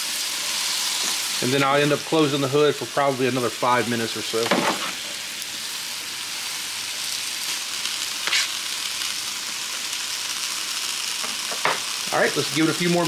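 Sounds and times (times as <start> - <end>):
vegetables sizzling on a griddle: 0.0 - 13.0
spatula scraping griddle: 8.2 - 8.6.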